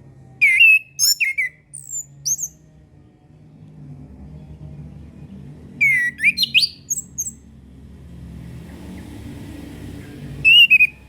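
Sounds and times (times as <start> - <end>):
thrush singing: 5.8 - 7.4, 10.4 - 11.0.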